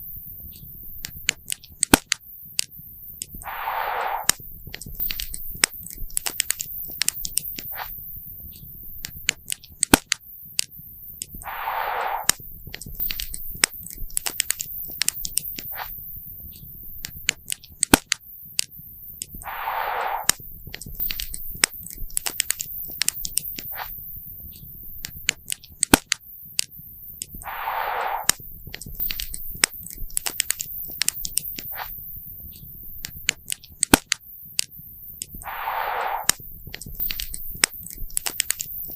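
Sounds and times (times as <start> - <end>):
brief hiss: 3.4 - 4.4, 11.4 - 12.4, 19.4 - 20.4, 27.4 - 28.4, 35.4 - 36.5.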